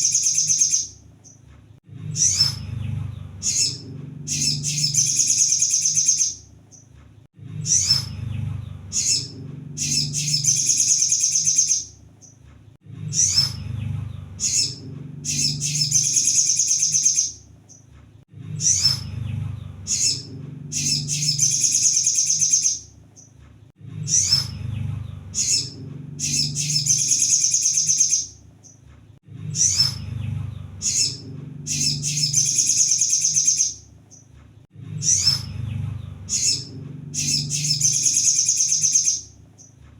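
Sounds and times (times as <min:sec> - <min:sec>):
bird chirps and high trill: 0:00.0 - 0:01.0, 0:02.1 - 0:06.8, 0:07.6 - 0:12.0, 0:13.0 - 0:17.4, 0:18.5 - 0:22.9, 0:24.0 - 0:28.8, 0:29.5 - 0:33.9, 0:35.0 - 0:39.4
low steady hum: 0:00.9 - 0:16.5, 0:17.3 - 0:22.0, 0:22.8 - 0:27.5, 0:28.3 - 0:39.9.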